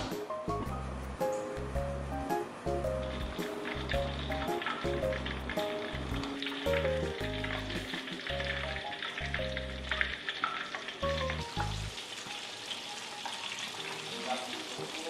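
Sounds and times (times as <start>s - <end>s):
background music with plucked bass: 0.0s - 10.1s, 11.0s - 11.9s
food sizzling in a pan: 1.0s - 15.0s.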